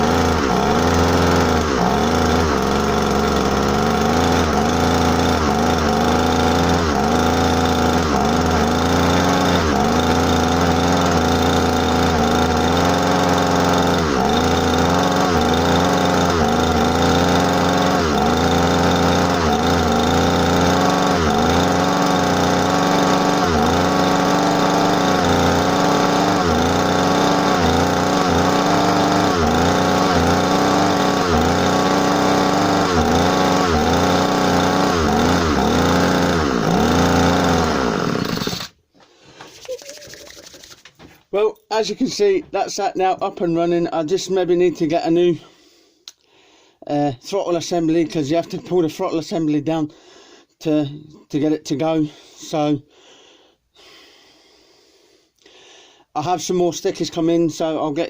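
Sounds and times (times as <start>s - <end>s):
grass strimmer engine surging: 0.0s - 40.9s.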